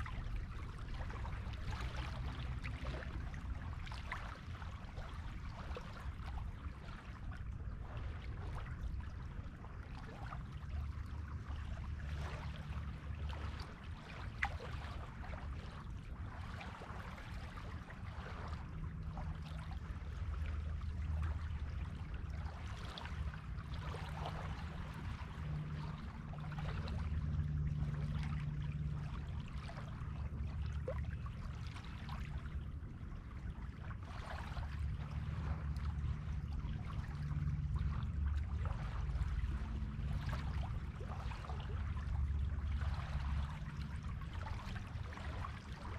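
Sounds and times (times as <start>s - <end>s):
low rumble: 0.0s - 45.9s.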